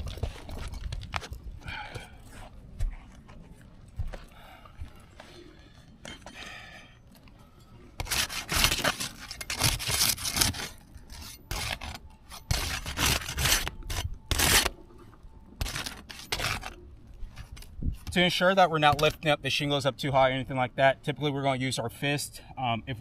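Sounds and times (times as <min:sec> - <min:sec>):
roof shingles scraping: 0:08.0 - 0:14.7, 0:15.6 - 0:16.8.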